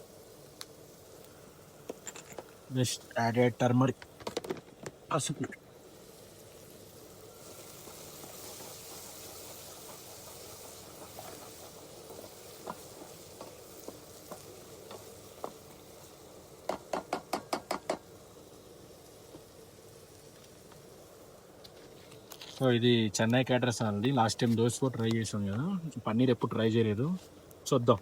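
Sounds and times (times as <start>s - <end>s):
food sizzling in a pan: 0.0s - 28.0s
spoon stirring against pan: 7.4s - 15.7s.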